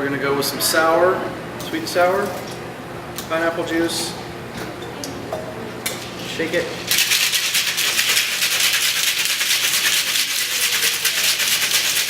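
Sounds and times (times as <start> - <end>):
ice rattling in cocktail shaker: 6.0 - 12.0.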